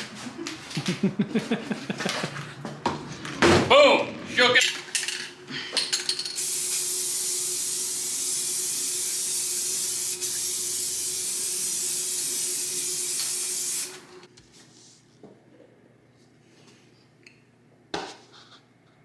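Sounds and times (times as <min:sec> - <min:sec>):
spray paint can hissing: 0:06.4 - 0:14.2.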